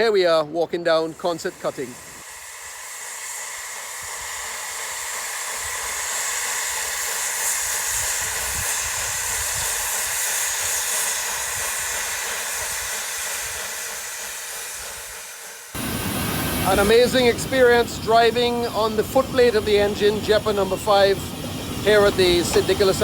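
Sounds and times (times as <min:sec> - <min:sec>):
wind blowing: 0:15.8 - 0:23.0.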